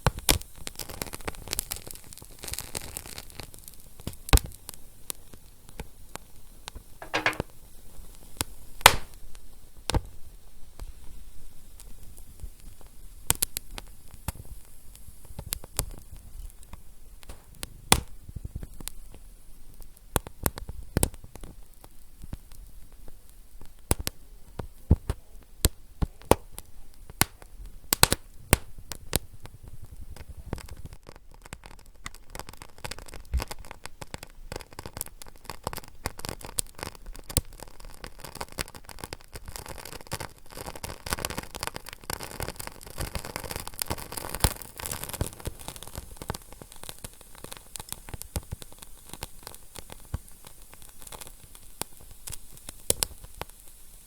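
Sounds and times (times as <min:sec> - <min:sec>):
wood fire crackling: 0:08.4 - 0:10.0, 0:11.1 - 0:54.0.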